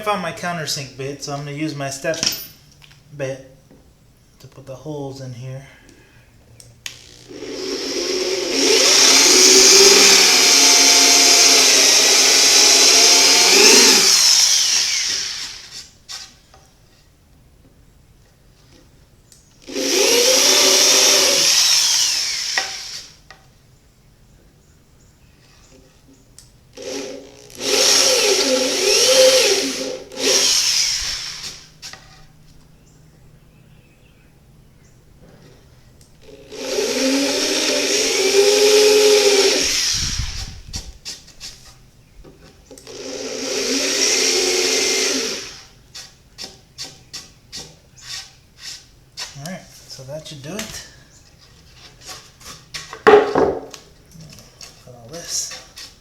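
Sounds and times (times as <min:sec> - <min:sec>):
power drill boring into plywood: 0:06.9 - 0:15.9, 0:19.6 - 0:23.2, 0:26.7 - 0:31.8, 0:36.2 - 0:40.6, 0:42.8 - 0:45.8.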